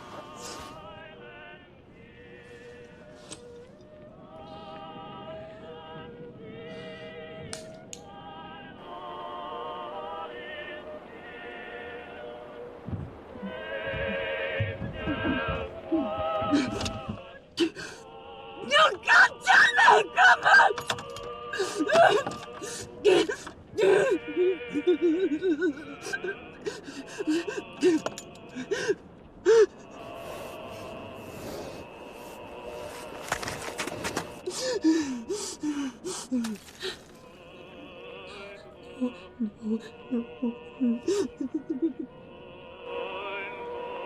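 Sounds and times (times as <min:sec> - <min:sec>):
operatic voice singing a carol: 0:08.0 - 0:28.9, 0:29.5 - 0:44.0
low thuds: 0:12.8 - 0:17.4
person gasping and whimpering: 0:21.5 - 0:29.8, 0:34.4 - 0:37.1, 0:40.8 - 0:42.1.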